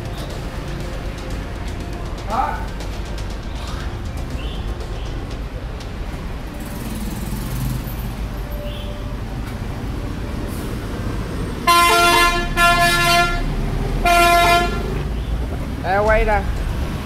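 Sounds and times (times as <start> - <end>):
road traffic rumble: 0.0 - 17.0
vehicle horn honking: 11.6 - 15.0.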